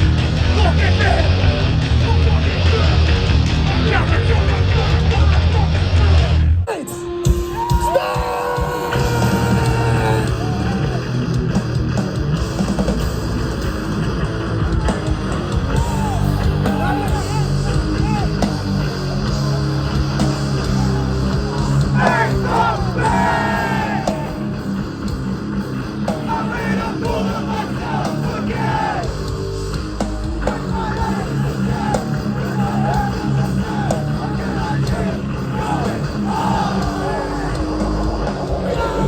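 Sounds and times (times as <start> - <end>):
shouted vocals: 0.0 - 11.3, 15.5 - 19.0, 20.1 - 24.9, 25.9 - 29.3, 30.3 - 39.0
hardcore band playing live: 0.0 - 39.0.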